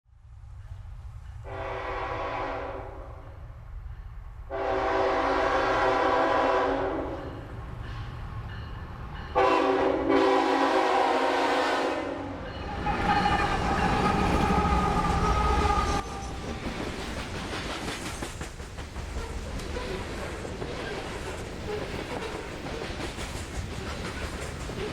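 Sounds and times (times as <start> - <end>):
locomotive air horn blasts: 1.4 - 3.3, 4.5 - 7.4, 9.4 - 16.3
locomotive engine rumble: 12.6 - 17.4.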